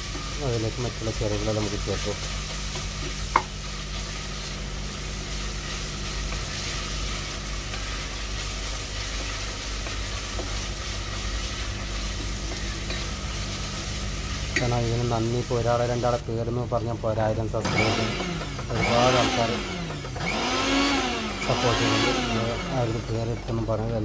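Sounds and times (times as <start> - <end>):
onions sizzling in hot oil: 0.0 - 24.0.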